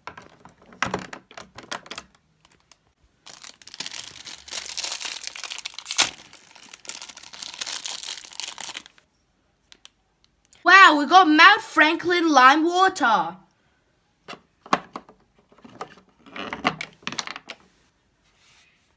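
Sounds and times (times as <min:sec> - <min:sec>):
plastic wrapper ripping: 0:01.4 - 0:09.0
plastic wrapper crinkling: 0:01.4 - 0:09.1.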